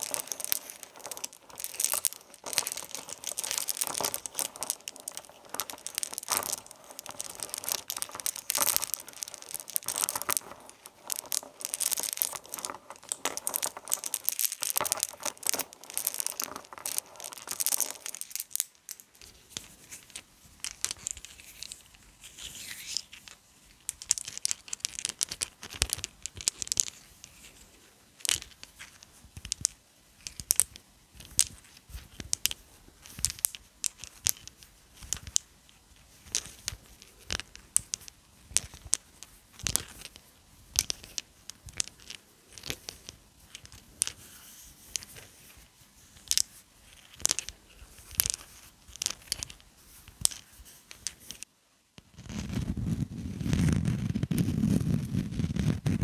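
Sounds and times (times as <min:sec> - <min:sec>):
crinkling and tearing: 0:00.0 - 0:18.7.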